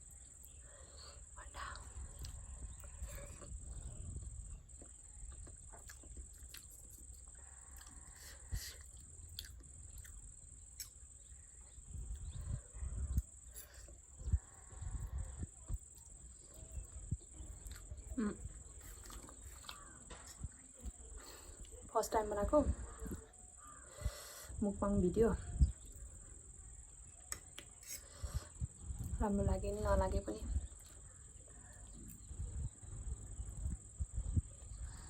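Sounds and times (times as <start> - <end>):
chewing and mouth noises: 4.6 - 11.0, 12.0 - 21.9.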